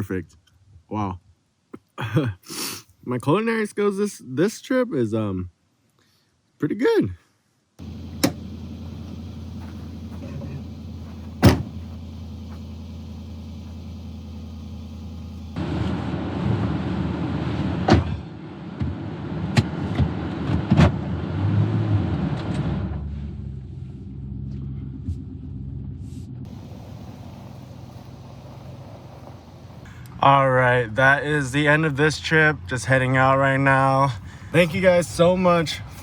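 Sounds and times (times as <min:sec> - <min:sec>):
suv engine and road noise: 0:07.8 - 0:36.0
sharp knocks: 0:09.6 - 0:12.6.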